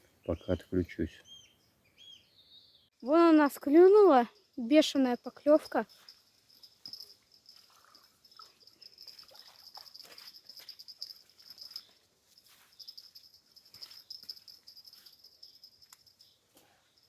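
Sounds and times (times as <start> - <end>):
crickets chirping: 3.6 - 17.0.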